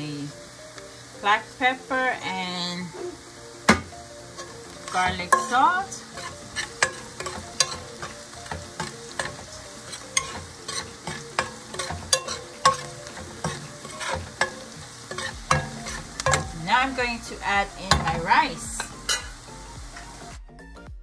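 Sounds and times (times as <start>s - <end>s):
onions sizzling in oil: 0.0s - 20.4s
metal spoon scraping a pan: 3.7s - 19.4s.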